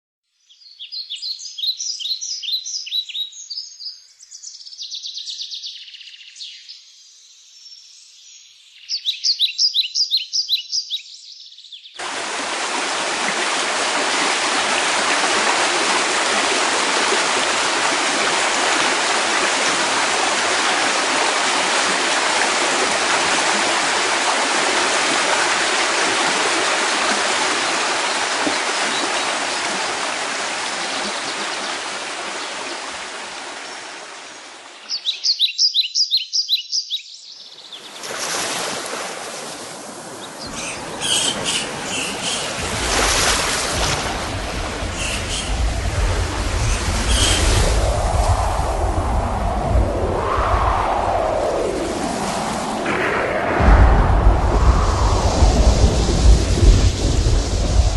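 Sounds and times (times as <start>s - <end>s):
rushing water: 12.0s - 35.4s, 37.7s - 57.9s
high bird chirps: 34.8s - 37.8s.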